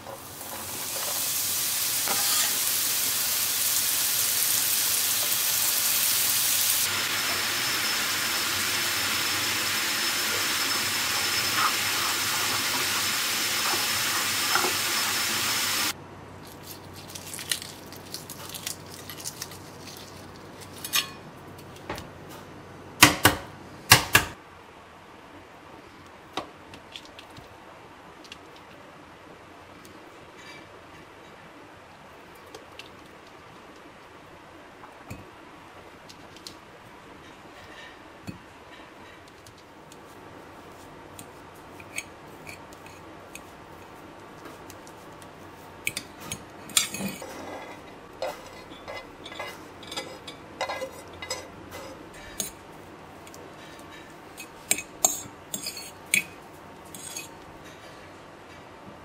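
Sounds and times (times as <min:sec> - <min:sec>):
mushrooms sizzling in frying pan: 0:00.0 - 0:16.0.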